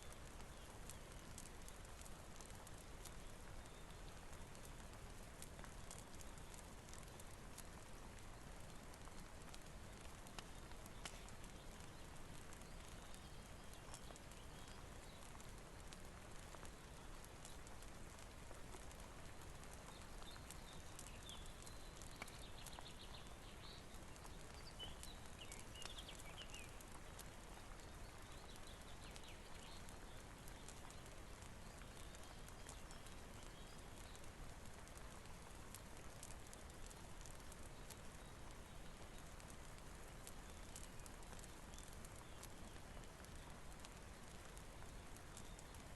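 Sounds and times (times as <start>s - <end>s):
soft rain: 0.0s - 45.9s
wood fire crackling: 0.0s - 45.9s.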